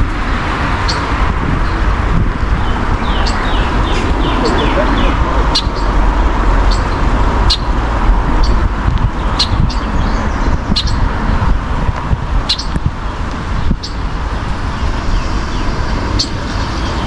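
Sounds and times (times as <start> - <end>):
road traffic rumble: 0.0 - 17.0
bird chirping: 0.8 - 1.8, 2.4 - 11.1, 12.4 - 12.8, 13.7 - 14.1, 14.8 - 17.0.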